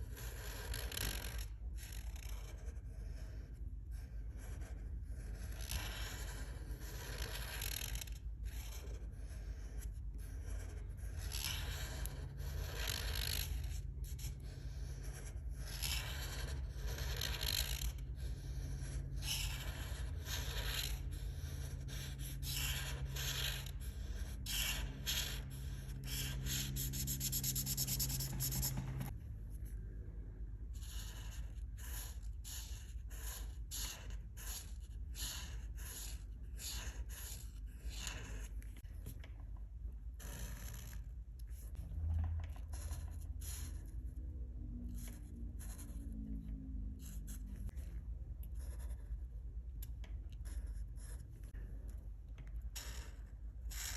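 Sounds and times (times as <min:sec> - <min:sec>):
colouring tool rubbing on paper: 0:00.0 - 0:29.2, 0:30.7 - 0:38.9
quick scribbling strokes: 0:02.4 - 0:29.6.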